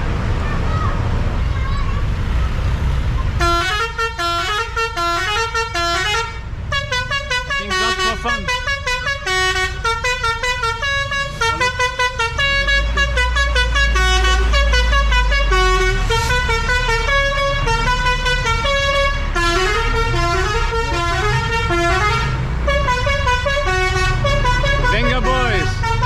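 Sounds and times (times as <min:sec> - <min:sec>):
deep rumble: 0:00.0 - 0:05.1.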